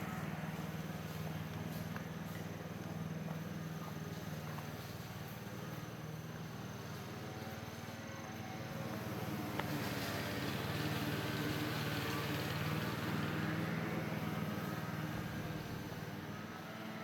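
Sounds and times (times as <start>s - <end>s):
motor vehicle passing by: 8.9s - 17.0s.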